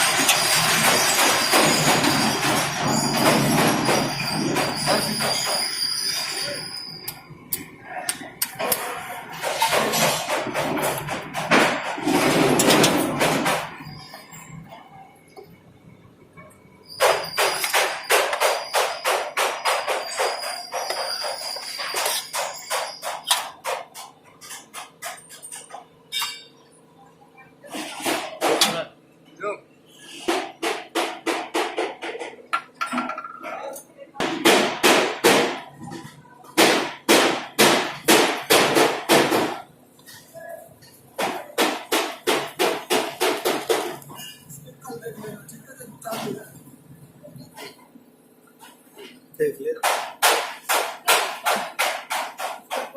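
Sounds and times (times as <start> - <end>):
hammer striking metal: 17.0 - 25.6, 34.2 - 35.7, 36.6 - 39.6, 41.2 - 44.0, 49.8 - 52.9.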